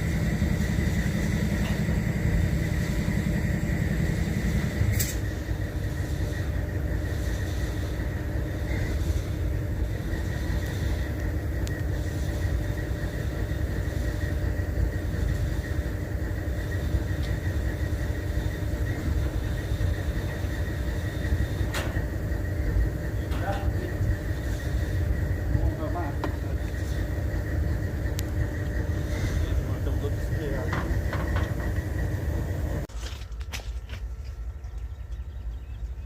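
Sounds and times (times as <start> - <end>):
locomotive idling rumble: 0.0 - 36.0.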